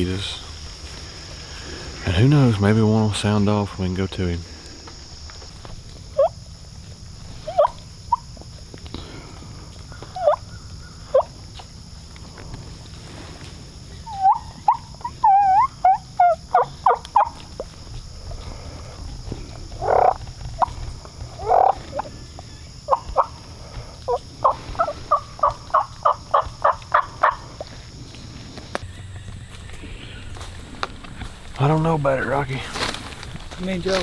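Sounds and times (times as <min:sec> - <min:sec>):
turkey yelping: 0:06.1 - 0:06.4, 0:07.3 - 0:08.4, 0:09.8 - 0:11.6, 0:13.9 - 0:27.8.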